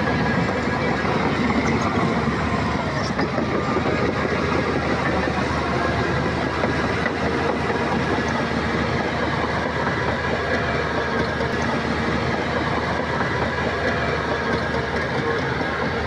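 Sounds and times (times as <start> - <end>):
bulldozer diesel engine under load: 0.0 - 16.0
steel tracks clattering: 0.0 - 16.0.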